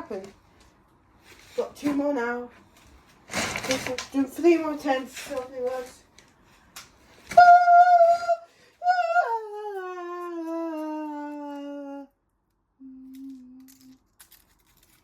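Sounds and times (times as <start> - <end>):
person humming wordlessly: 7.4 - 12.1, 12.8 - 14.0.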